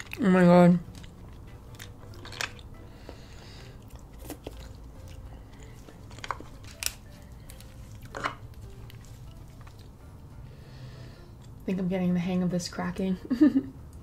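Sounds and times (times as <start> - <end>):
crab shells cracking: 0.0 - 9.9
soft eating sounds: 0.0 - 11.7.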